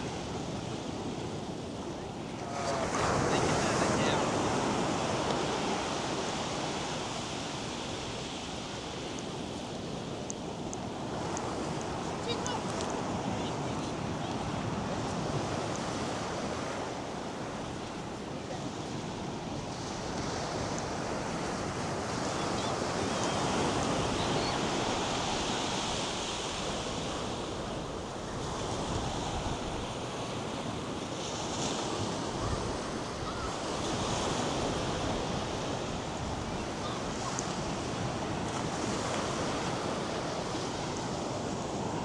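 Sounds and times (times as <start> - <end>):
surf breaking on beach: 0.0 - 9.1.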